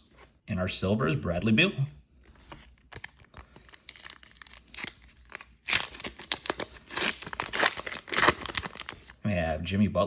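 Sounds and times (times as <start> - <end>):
wrapper crinkling and tearing: 2.4 - 9.2.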